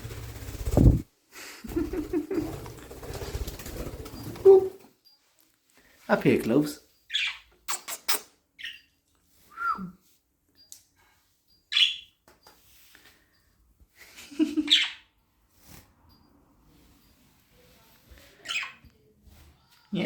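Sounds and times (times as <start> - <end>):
budgerigar chirping and squawking: 7.1 - 8.8, 14.7 - 15.1.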